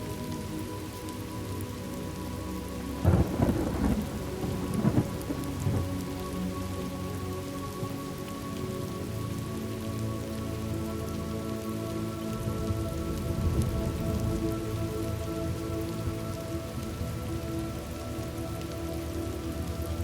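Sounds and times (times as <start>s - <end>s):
steady rain: 0.0s - 20.0s
thunderclap rumbling: 3.0s - 5.9s.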